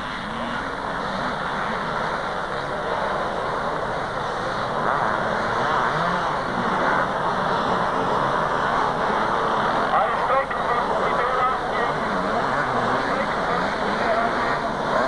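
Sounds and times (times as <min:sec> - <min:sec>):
motocross bikes racing: 0:00.0 - 0:15.0.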